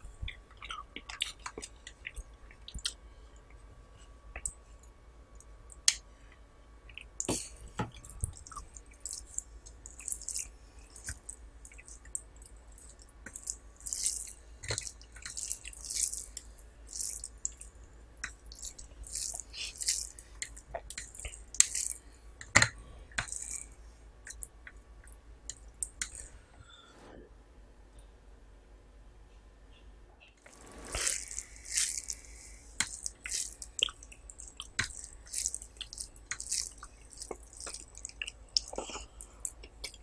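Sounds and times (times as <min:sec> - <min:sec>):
wet eating sounds: 0:00.1 - 0:03.0, 0:06.9 - 0:24.6, 0:30.4 - 0:40.0.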